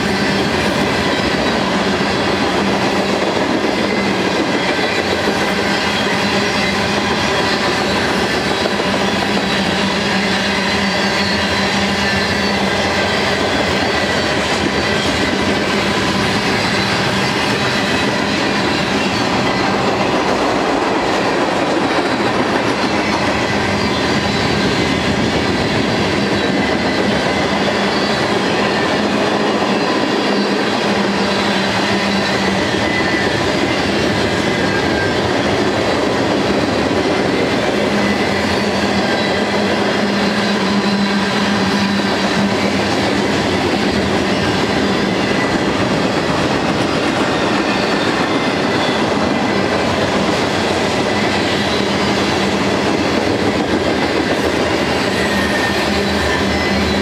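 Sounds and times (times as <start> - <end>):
steel train wheels rolling on rails: 0.0 - 57.0.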